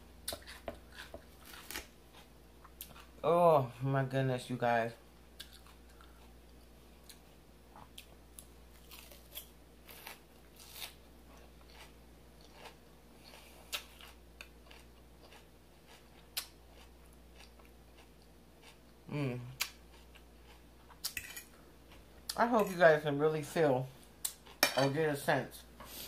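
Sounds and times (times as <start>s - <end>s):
chewing crunches: 7.8s - 19.0s.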